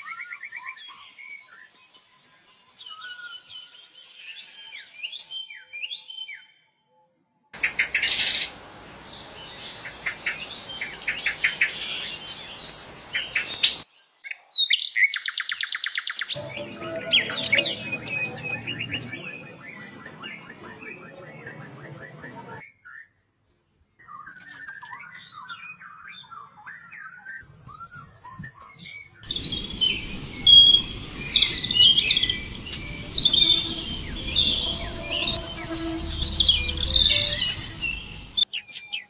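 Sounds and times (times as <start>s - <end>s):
chorus of birds chirping: 7.6s - 23.0s, 24.0s - 39.0s
songbird trill: 14.6s - 22.4s, 24.0s - 39.0s.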